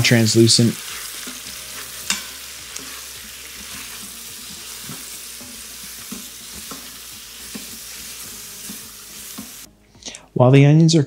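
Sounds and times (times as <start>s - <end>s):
onions sizzling in oil: 0.0s - 9.7s
tongs knocking against pot: 2.0s - 3.0s.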